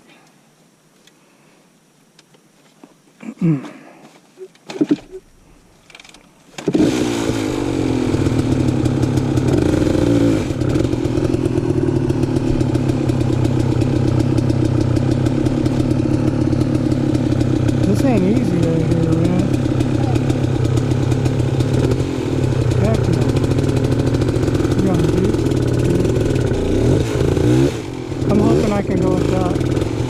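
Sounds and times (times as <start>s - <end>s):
dirt bike engine idling: 6.7s - 30.0s.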